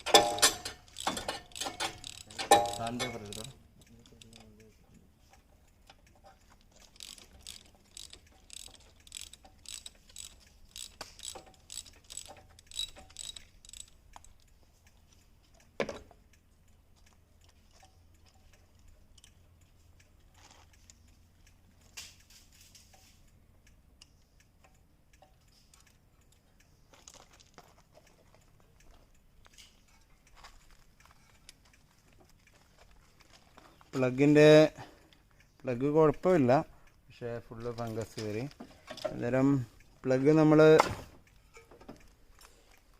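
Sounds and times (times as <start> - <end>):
ratchet wrench clicking: 0.0 - 4.6, 5.8 - 15.7, 17.4 - 28.2.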